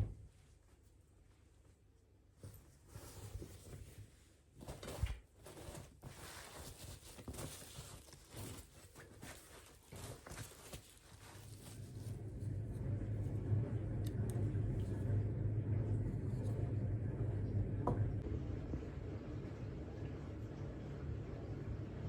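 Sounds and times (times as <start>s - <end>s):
rustling: 0.3s - 13.3s.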